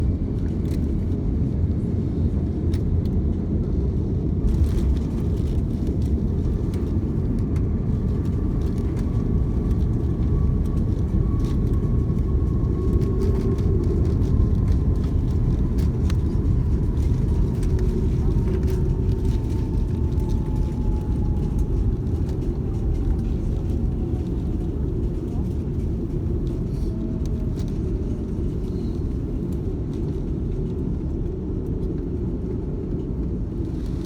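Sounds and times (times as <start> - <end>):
airliner low rumble: 0.0 - 34.0.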